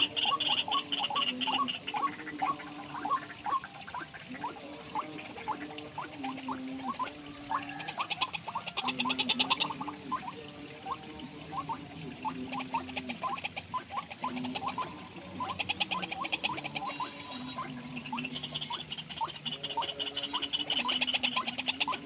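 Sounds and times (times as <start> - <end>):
frogs fast rattling trills: 0.0 - 22.0
frogs low croaks: 0.0 - 22.0
frogs short rising chirps: 7.7 - 22.0.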